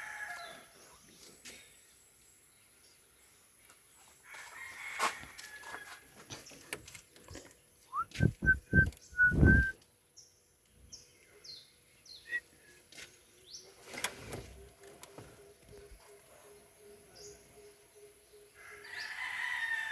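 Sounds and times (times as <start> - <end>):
birds chirping: 6.3 - 19.3
whistle-like tone: 7.9 - 9.8.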